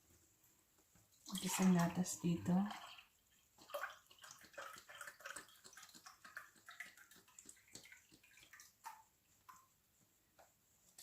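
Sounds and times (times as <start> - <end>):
milk splashing and dripping: 1.1 - 9.7.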